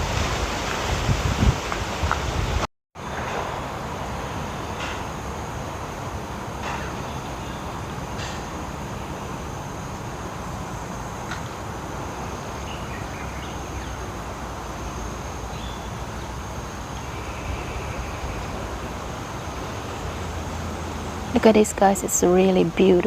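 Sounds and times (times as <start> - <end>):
wind: 0.0 - 23.0
distant road traffic: 3.0 - 23.0.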